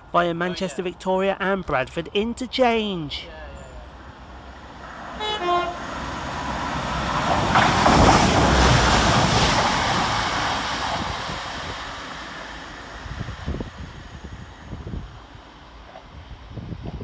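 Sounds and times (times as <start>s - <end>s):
train rushing past: 3.8s - 17.0s.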